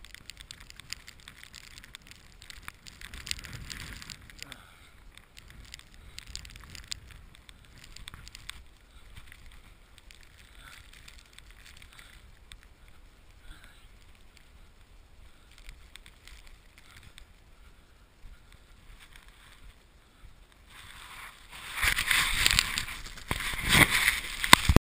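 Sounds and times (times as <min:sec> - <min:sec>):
rustling on microphone: 0:00.0 - 0:24.8
footsteps crunching in snow: 0:20.6 - 0:24.8.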